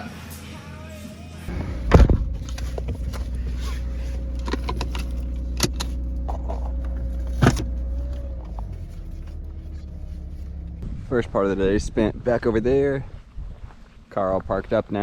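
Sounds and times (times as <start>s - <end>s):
car engine and road rumble: 1.5s - 12.3s.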